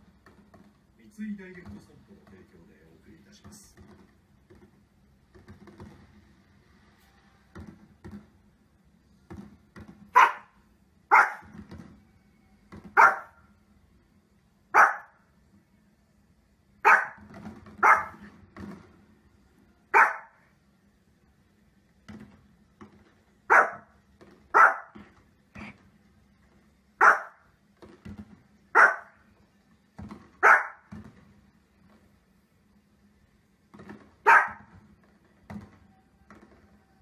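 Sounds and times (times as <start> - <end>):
small dog barking: 10.1 - 11.5, 13.0 - 13.4, 14.7 - 15.2, 16.8 - 17.2, 17.8 - 18.2, 19.9 - 20.4, 23.5 - 23.9, 24.5 - 25.0, 27.0 - 27.4, 28.7 - 29.2, 30.4 - 30.9, 34.2 - 34.7.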